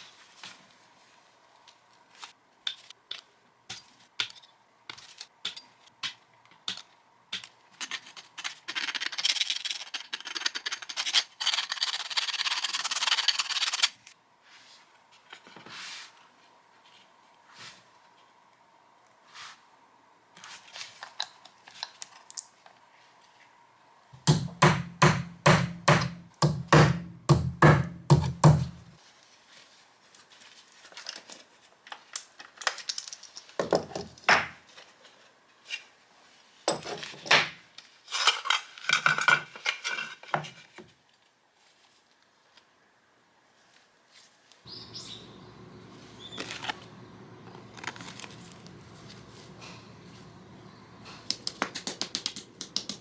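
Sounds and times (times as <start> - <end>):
steady low hum: 44.7 - 51.6.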